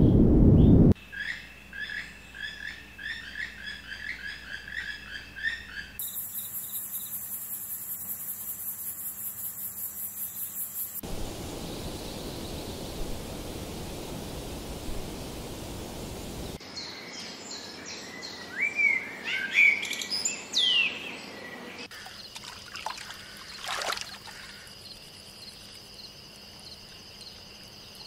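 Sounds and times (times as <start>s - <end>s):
steady hiss: 9.8s - 16.6s.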